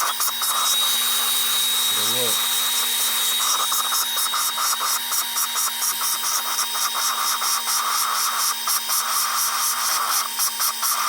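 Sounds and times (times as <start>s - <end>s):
valve grinding against seat: 0.0s - 11.0s
motor hum: 0.8s - 4.0s.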